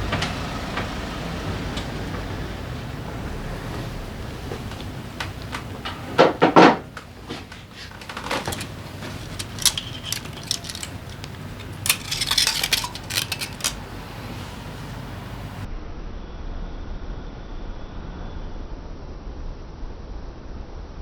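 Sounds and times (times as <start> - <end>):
metal tools clinking: 7.3 - 15.6.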